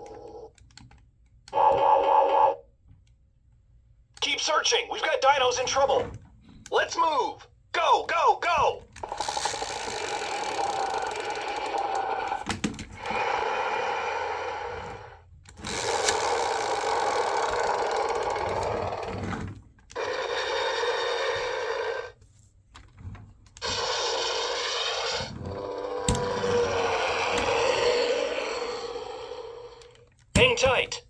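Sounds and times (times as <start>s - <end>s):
toy electronic sound effects: 1.6s - 2.6s, 9.0s - 12.4s.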